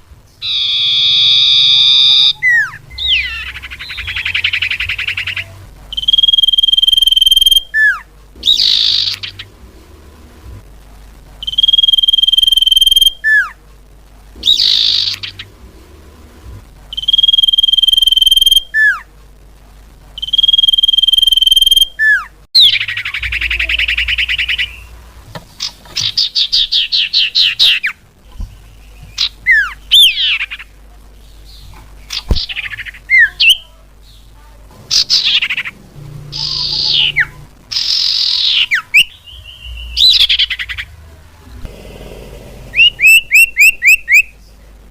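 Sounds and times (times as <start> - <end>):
rapid repeated bird notes: 0.0 - 9.9, 14.4 - 15.7, 34.2 - 41.0, 41.7 - 44.4
bird whistles: 0.4 - 9.4, 11.4 - 13.5, 16.9 - 19.0, 20.2 - 24.9, 36.4 - 40.8, 42.8 - 44.3
buzzy bird trill: 0.4 - 9.6, 11.4 - 13.6, 14.4 - 15.6, 16.9 - 19.0, 20.2 - 25.0, 34.8 - 41.0, 42.6 - 44.3.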